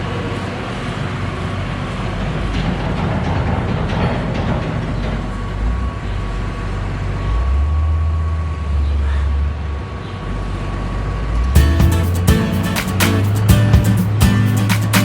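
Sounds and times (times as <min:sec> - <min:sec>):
deep hum: 0:11.6 - 0:15.0
heavy engine rumbling: 0:11.6 - 0:15.0.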